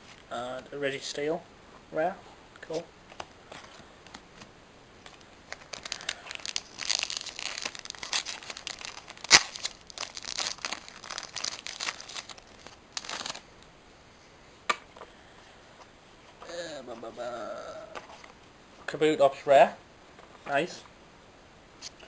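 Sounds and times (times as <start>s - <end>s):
foil wrapper tearing and crinkling: 5.1s - 13.4s.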